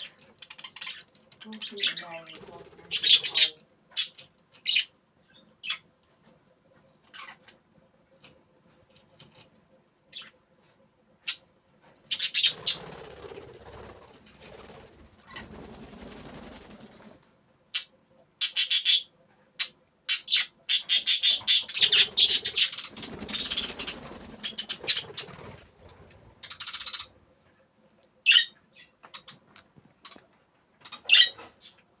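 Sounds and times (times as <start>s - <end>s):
wings fluttering and scuffling: 0.0s - 4.6s, 6.0s - 9.7s, 10.6s - 17.9s, 20.7s - 27.6s
budgerigars chirping: 0.0s - 5.8s, 12.1s - 12.8s, 17.8s - 25.6s, 26.4s - 27.1s, 28.3s - 29.4s, 30.9s - 31.8s.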